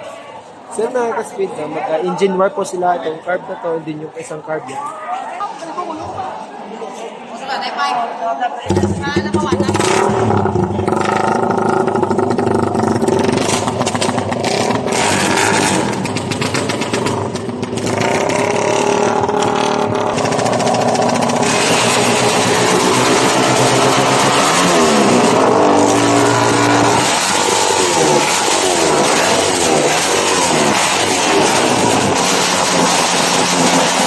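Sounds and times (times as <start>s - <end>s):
motorcycle engines revving: 8.6s - 34.0s.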